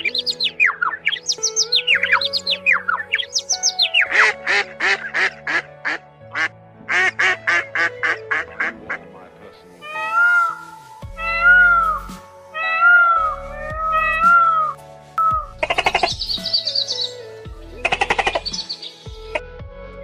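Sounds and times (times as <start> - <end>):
ducks quacking: 0.0 - 10.6
background music: 0.0 - 20.0
long arched animal calls: 9.8 - 16.2.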